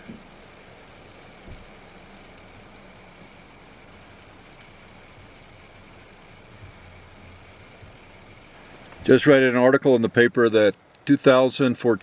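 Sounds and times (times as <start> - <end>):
low hum: 0.0 - 9.3
faint outdoor background hiss: 0.0 - 12.0
soft low thumps: 6.5 - 9.1.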